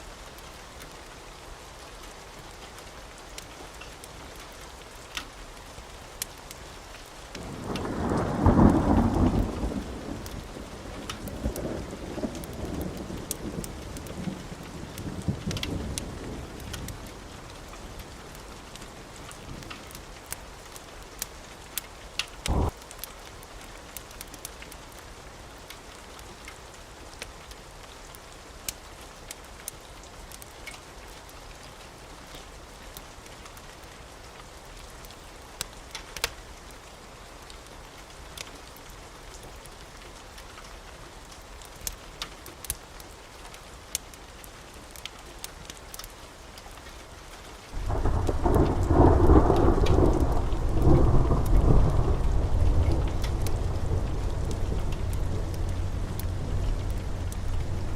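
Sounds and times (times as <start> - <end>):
wood fire crackling: 0.2 - 36.8, 37.4 - 57.9
loud low rumble: 50.4 - 57.9.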